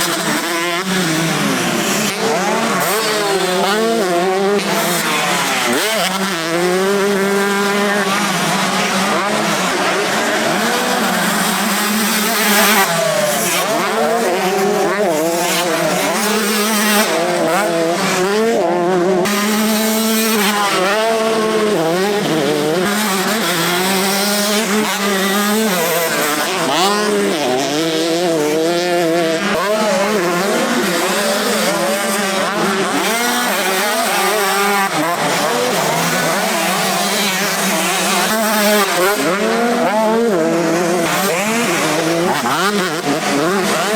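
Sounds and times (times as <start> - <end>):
motocross bikes revving: 0.0 - 43.9.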